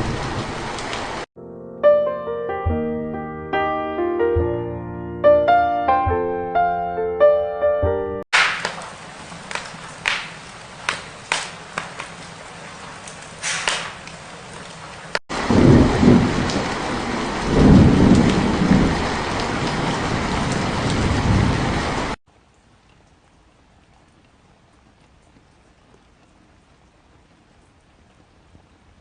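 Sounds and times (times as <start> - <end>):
steady rain: 0.0 - 1.3, 8.4 - 29.0
thunder rolling: 0.0 - 1.3, 15.3 - 22.2.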